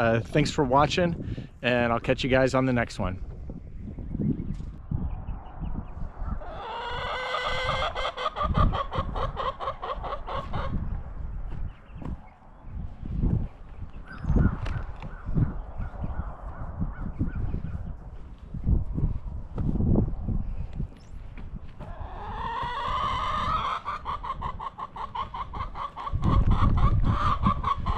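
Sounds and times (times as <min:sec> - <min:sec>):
chicken calling: 0:06.4 - 0:10.8, 0:21.8 - 0:27.9
chicken clucking: 0:06.4 - 0:10.8, 0:21.8 - 0:27.9
rooster crowing: 0:06.5 - 0:08.4.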